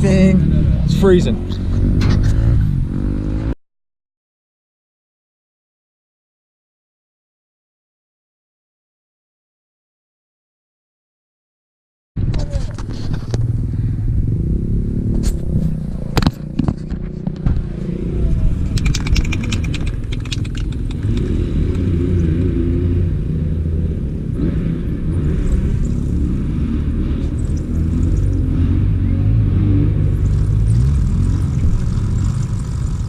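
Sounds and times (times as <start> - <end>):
rattling clicks: 18.7 - 21.8
sharp clicks: 18.7 - 21.9.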